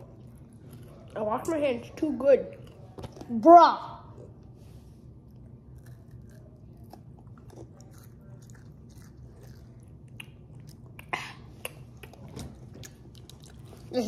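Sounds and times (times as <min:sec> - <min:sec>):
chewing chocolate bar crackles: 0:05.2 - 0:14.0.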